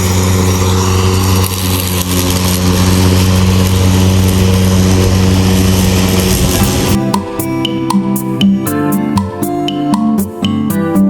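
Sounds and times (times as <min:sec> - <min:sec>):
electric lawn mower humming: 0:00.0 - 0:10.7.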